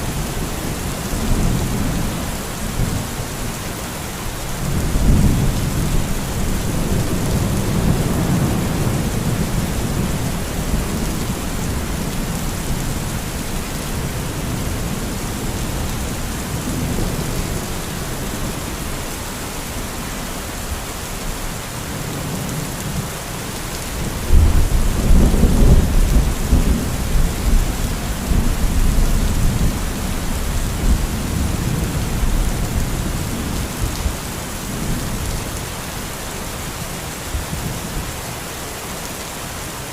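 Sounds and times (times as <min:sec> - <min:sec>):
steady rain: 0:00.0 - 0:39.9
rolling thunder: 0:24.2 - 0:34.0.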